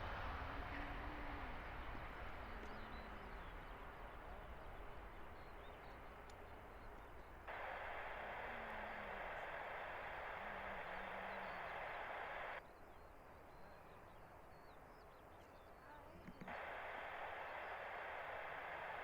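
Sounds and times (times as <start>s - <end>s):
steady rushing noise: 0.0s - 12.6s, 16.5s - 19.0s
distant jet airliner: 0.0s - 19.0s
faint bird calls: 0.1s - 19.0s.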